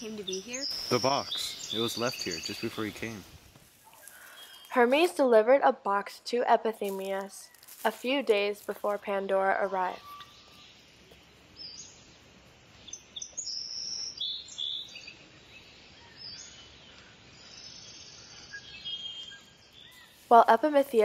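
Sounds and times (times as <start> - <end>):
birds calling and chirping: 0.0 - 5.2, 6.9 - 21.0
faint background hiss: 0.0 - 5.3.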